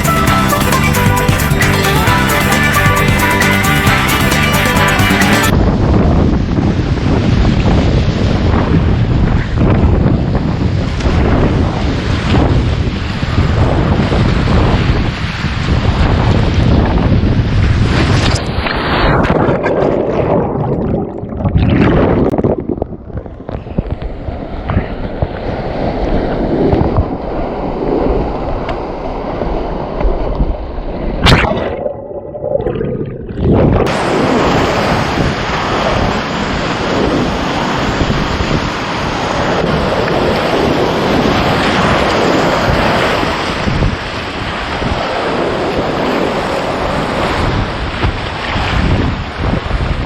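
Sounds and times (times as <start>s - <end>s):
wind buffeting microphone: 5.5s - 50.0s
river water rushing and splashing: 33.6s - 47.6s.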